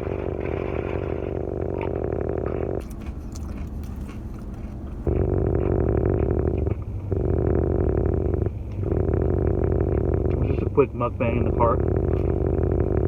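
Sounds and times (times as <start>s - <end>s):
chewing and biting food: 2.8s - 5.1s
light clicks and rustles: 2.8s - 5.1s.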